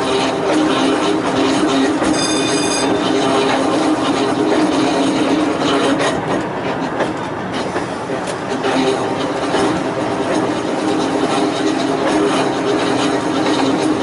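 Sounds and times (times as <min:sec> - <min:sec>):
railway car humming and rumbling: 0:00.0 - 0:14.0
high wheel squeal: 0:02.0 - 0:03.6.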